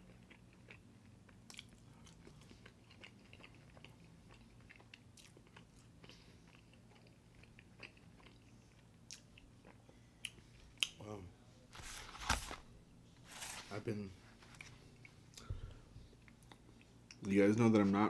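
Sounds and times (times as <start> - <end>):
person chewing: 0.0 - 11.0
low steady hum: 0.0 - 18.0.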